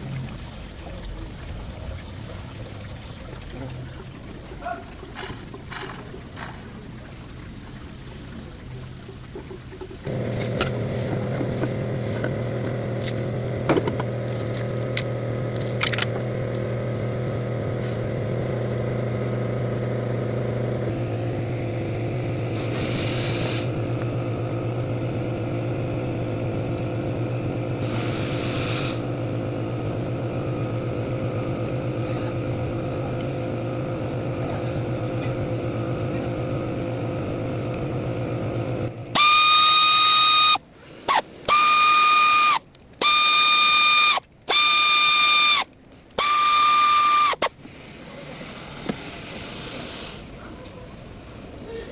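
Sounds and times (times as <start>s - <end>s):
car engine idling: 10.1s - 39.2s
brief hissing: 22.6s - 23.7s, 27.8s - 29.0s, 39.2s - 50.5s.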